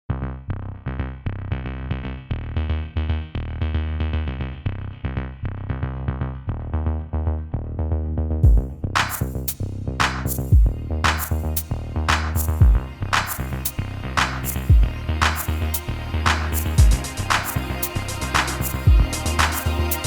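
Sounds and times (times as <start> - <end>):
drum machine beat: 8.4 - 13.5, 14.2 - 15.6, 16.3 - 20.0
synthesizer riff: 14.4 - 20.0.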